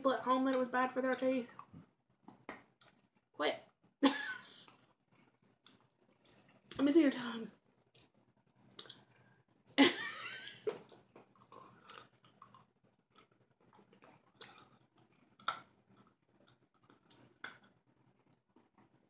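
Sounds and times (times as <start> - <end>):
mouth clicks: 8.7 - 9.1.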